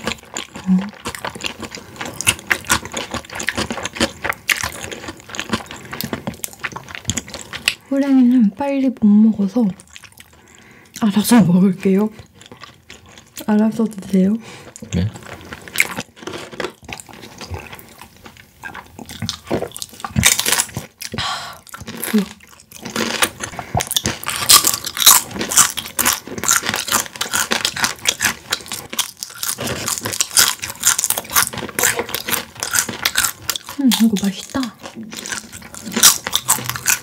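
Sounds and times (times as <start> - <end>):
crunchy chicken being chewed: 0.0 - 7.9, 9.8 - 11.1, 11.9 - 37.0.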